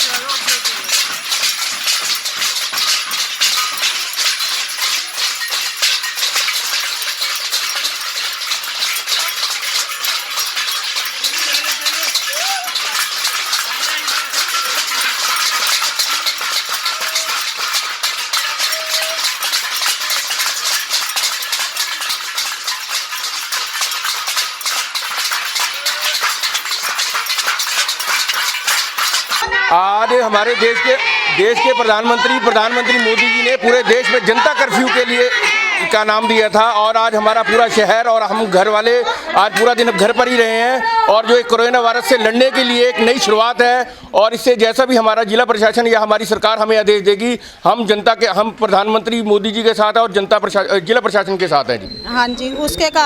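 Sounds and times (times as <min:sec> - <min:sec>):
metal plates clinking: 0:00.0 - 0:29.5, 0:30.1 - 0:43.8
crowd clapping: 0:00.0 - 0:43.9.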